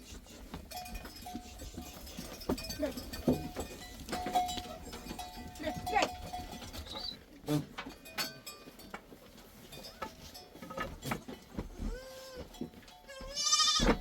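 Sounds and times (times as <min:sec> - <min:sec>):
sheep and goats bleating: 0:11.8 - 0:14.0.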